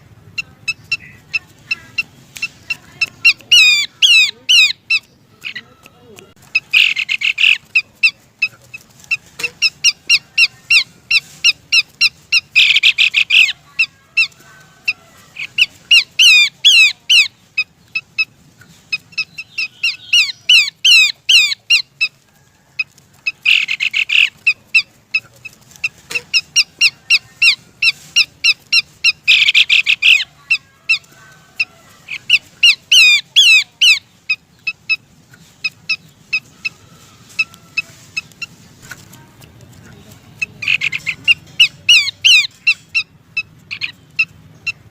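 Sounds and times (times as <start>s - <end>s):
bird chattering bursts: 0.4s - 5.7s, 6.4s - 22.1s, 23.3s - 36.8s, 40.4s - 44.9s
bird calling sharp high notes: 0.7s - 8.2s.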